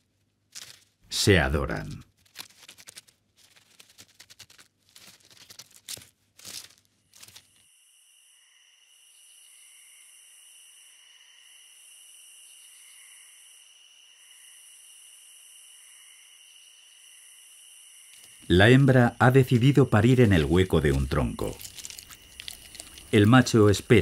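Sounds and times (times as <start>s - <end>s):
mice rustling in dry litter: 0.5s - 1.0s, 2.1s - 7.6s, 18.1s - 24.0s
insect chorus: 5.2s - 24.0s.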